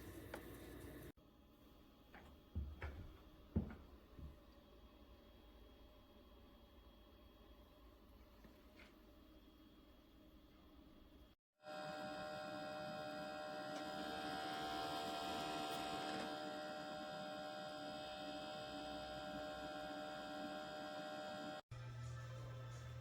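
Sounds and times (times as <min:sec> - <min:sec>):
humidifier electrical hum: 0:00.0 - 0:11.3.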